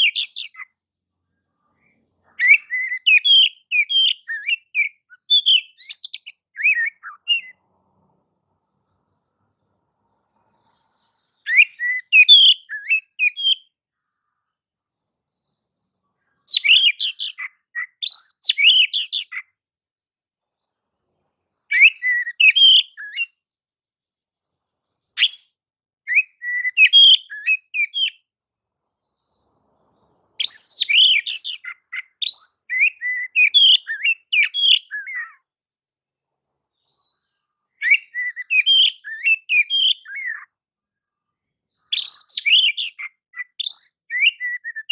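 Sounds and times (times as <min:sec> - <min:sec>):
bird singing whistled phrases: 0:02.4 - 0:07.6, 0:11.5 - 0:13.7, 0:16.5 - 0:19.4, 0:21.7 - 0:23.3, 0:25.2 - 0:25.5, 0:26.1 - 0:28.2, 0:30.4 - 0:35.4, 0:37.8 - 0:40.5, 0:41.9 - 0:44.9.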